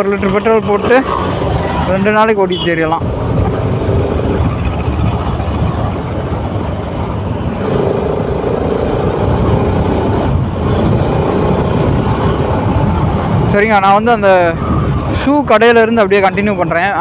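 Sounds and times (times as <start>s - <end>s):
wind and road noise: 0.0s - 17.0s
motorcycle engine running: 3.1s - 13.4s.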